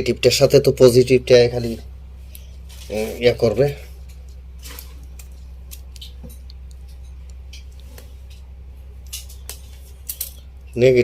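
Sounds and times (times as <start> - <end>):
steady low hum: 0.0 - 11.0
light clicks of handling wires: 4.0 - 10.8.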